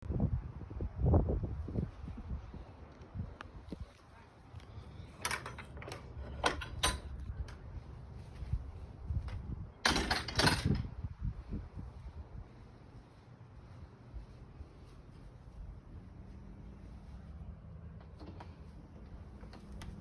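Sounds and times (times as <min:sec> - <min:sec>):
faint low rumble: 0:06.8 - 0:09.9, 0:10.6 - 0:20.0.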